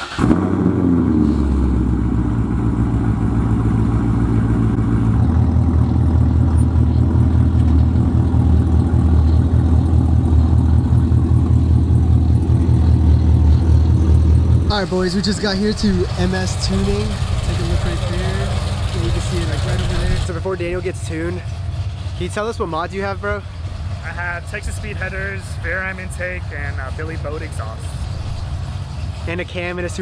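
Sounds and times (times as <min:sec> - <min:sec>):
car engine starting and idling: 0:00.0 - 0:30.0.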